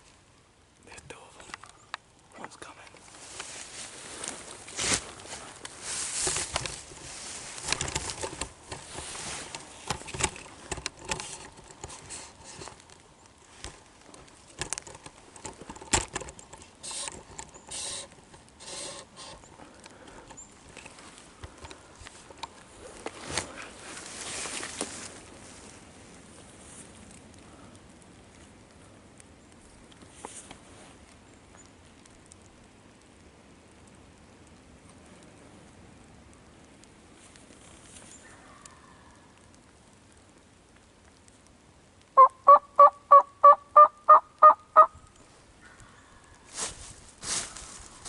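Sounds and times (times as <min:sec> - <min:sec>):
sharp crackles: 0:00.0 - 0:48.0
crunching and rustling in dry leaves: 0:01.1 - 0:28.9, 0:29.5 - 0:32.7, 0:37.0 - 0:39.7, 0:43.8 - 0:48.0.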